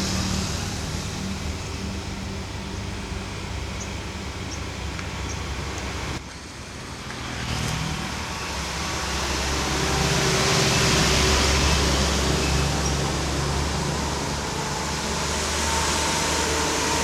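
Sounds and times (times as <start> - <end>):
vehicle engine running: 0.0 - 6.2
road noise: 0.0 - 17.0.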